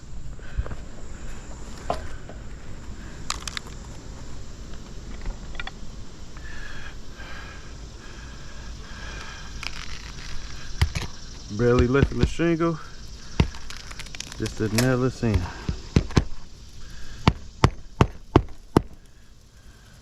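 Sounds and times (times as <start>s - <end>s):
shingles clicking and scraping: 1.7s - 4.0s, 9.1s - 19.2s.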